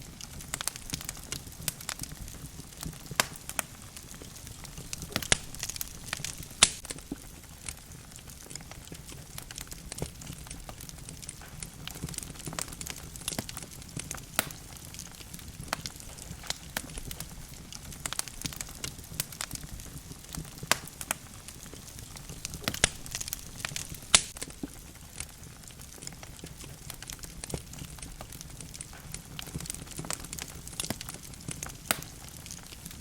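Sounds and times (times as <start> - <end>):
logs crackling in fireplace: 0.0 - 33.0.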